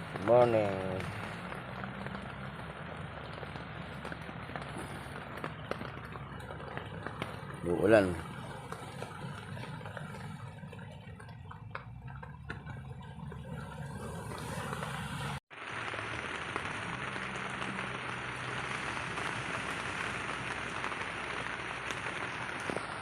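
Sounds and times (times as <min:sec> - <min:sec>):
drips: 0:00.0 - 0:15.4
rain falling: 0:00.0 - 0:23.0.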